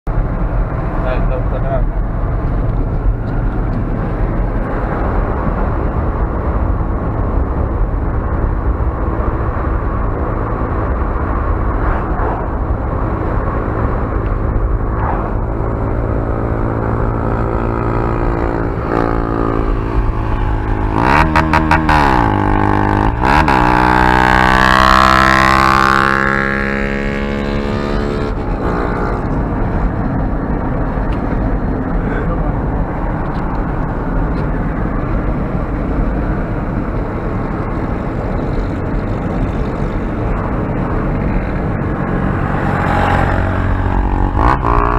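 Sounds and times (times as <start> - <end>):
motorcycle engine revving: 13.4 - 30.0, 40.9 - 44.9.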